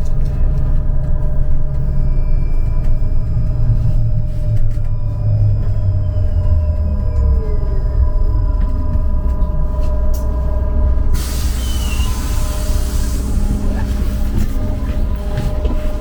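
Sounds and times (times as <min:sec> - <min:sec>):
trolleybus rumble: 0:00.0 - 0:16.0
compressed air hiss: 0:11.2 - 0:13.4.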